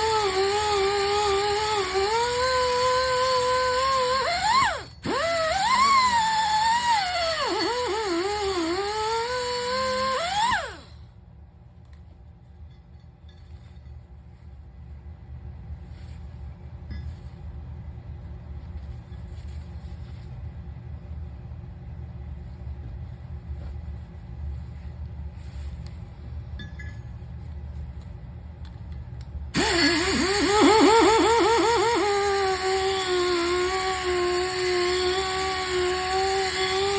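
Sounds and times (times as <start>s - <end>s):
power tool whining: 0.0s - 11.0s, 29.6s - 36.9s.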